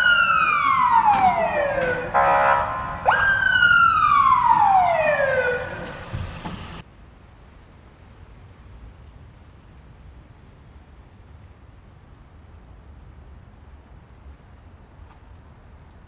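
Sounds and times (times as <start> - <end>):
buzzing horn blast: 0.0 - 6.1
police siren wailing: 0.0 - 6.8.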